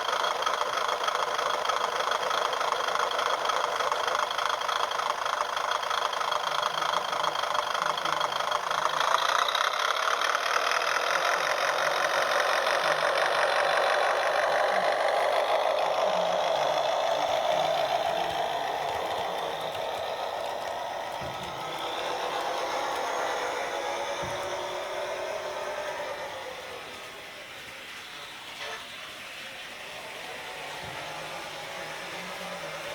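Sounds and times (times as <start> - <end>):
model train wheels clattering: 0.0 - 32.9
motor hum: 7.9 - 32.9.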